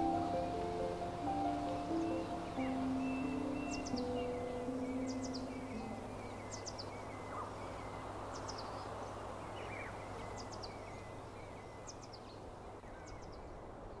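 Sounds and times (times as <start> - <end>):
bird call with high notes: 0.0 - 7.0
background hiss: 0.0 - 14.0.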